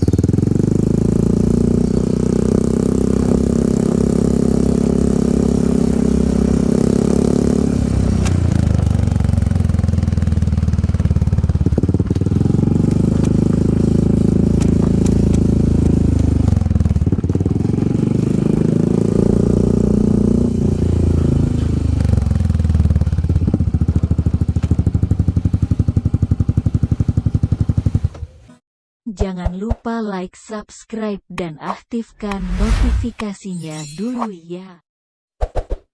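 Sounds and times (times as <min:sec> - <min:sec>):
scooter engine revving and idling: 0:00.0 - 0:28.5.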